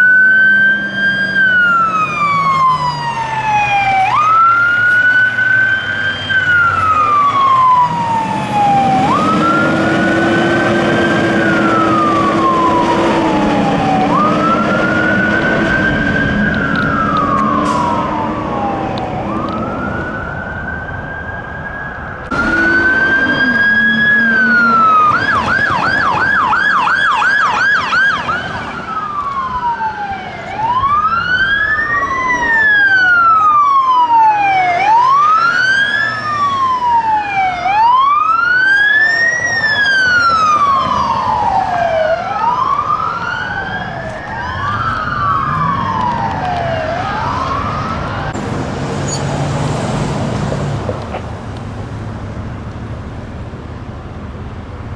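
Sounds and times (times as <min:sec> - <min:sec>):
police siren wailing and yelping: 0:00.0 - 0:51.6
second siren wailing: 0:00.0 - 0:51.6.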